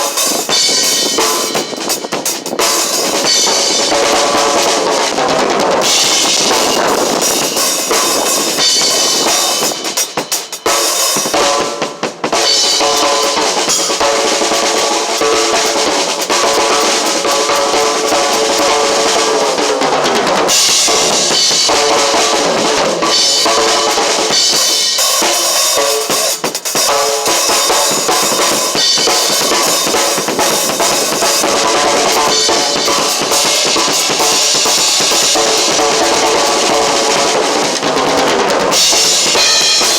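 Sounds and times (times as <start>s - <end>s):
drum kit playing: 0.0s - 39.9s.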